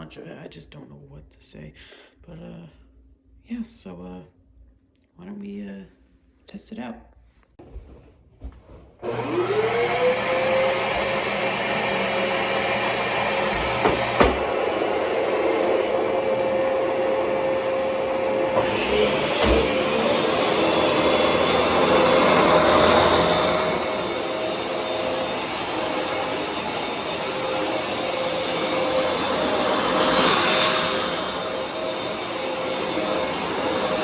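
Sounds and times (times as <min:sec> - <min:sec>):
vacuum cleaner motor whine: 0:09.0 - 0:34.0.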